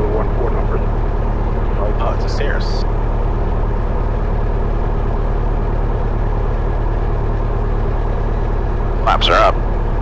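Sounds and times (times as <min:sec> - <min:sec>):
airplane engine idling: 0:08.0 - 0:09.6.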